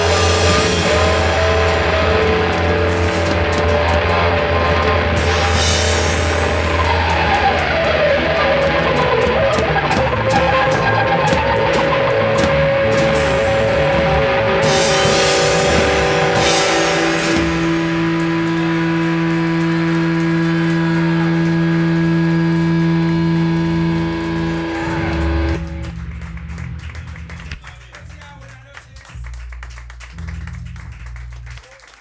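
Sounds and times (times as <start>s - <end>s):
cymbal crashes: 0.0s - 3.8s
rock band playing live: 0.0s - 31.5s.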